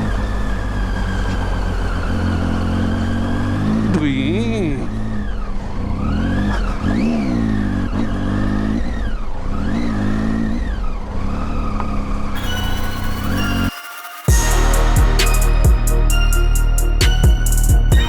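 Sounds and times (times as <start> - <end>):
motorcycle engine revving: 0.0 - 12.4.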